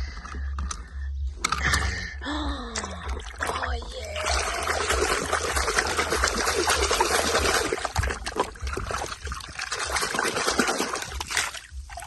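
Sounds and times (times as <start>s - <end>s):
toys clicking and knocking: 0.2s - 2.1s
water splashing over plastic toys: 2.6s - 12.0s.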